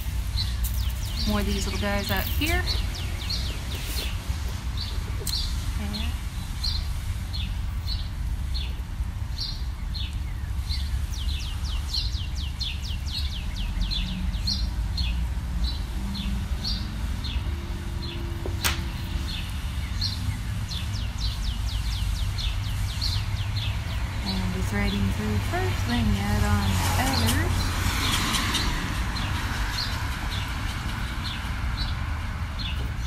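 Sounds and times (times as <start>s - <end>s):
small bird chirping: 0.0s - 8.8s.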